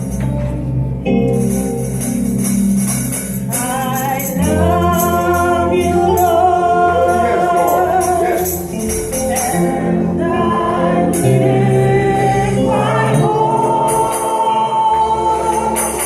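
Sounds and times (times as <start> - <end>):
gospel band music: 0.0 - 16.0
tambourine shaking: 1.4 - 5.5, 7.1 - 9.7
voices singing long notes: 3.5 - 16.0.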